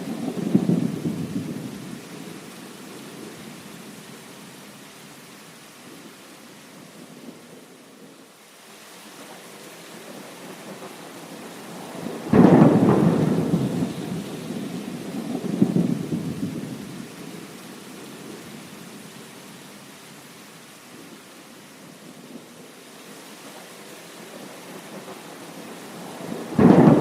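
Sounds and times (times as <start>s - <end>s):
steady rain: 0.0s - 27.0s
thunderclap rolling: 12.2s - 16.8s, 26.2s - 27.0s.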